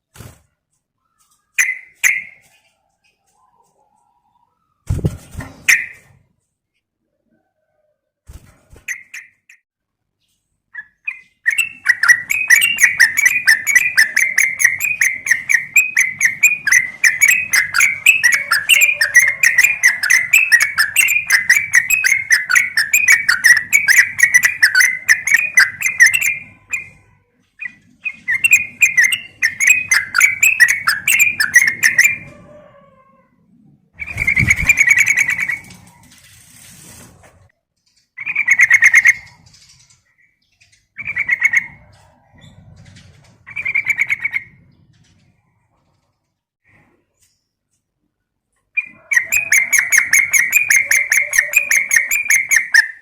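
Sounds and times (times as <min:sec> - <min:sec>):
bird chattering bubbly notes: 0:11.5 - 0:26.9, 0:48.9 - 0:53.0.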